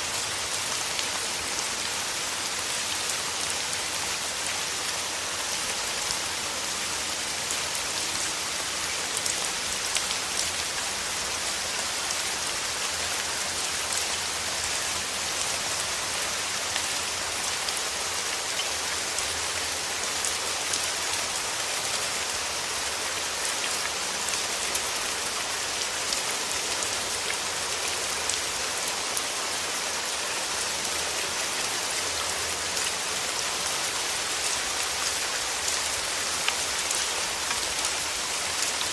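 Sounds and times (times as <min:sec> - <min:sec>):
rain pattering on leaves: 0:00.0 - 0:38.9.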